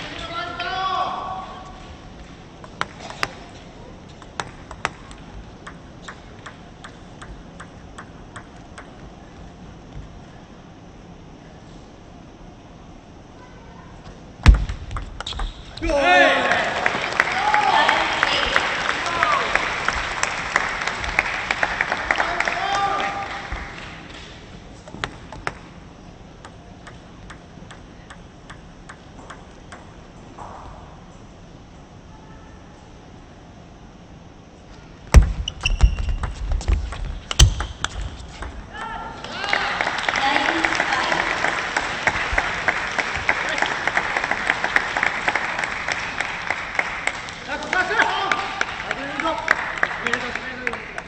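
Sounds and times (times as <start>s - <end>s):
table tennis ball clicking: 4.2s - 9.0s, 26.4s - 30.1s.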